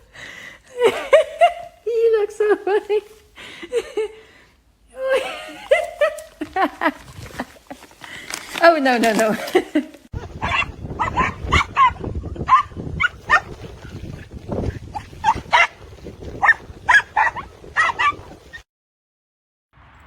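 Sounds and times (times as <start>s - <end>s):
dog barking: 10.4s - 13.6s, 15.0s - 15.8s, 16.4s - 18.3s.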